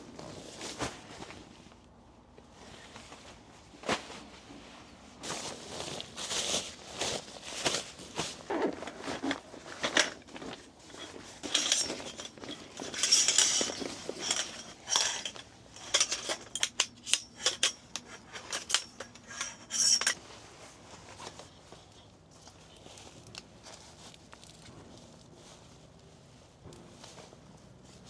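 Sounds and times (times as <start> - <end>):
objects clattering and clinking: 7.0 - 20.2.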